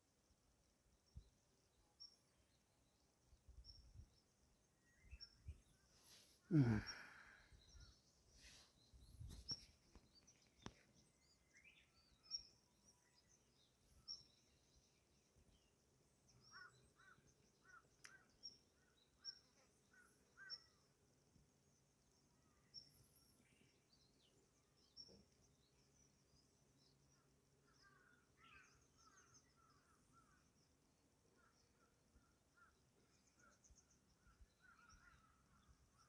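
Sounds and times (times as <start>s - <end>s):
small birds chirping: 1.1s - 36.0s
faint clicks: 9.5s - 10.9s, 18.0s - 18.2s.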